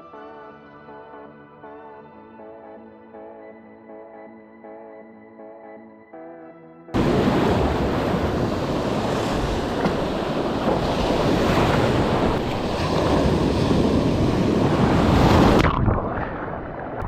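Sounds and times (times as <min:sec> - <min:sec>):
sea waves washing: 0:07.0 - 0:17.0
wind buffeting microphone: 0:07.0 - 0:17.0.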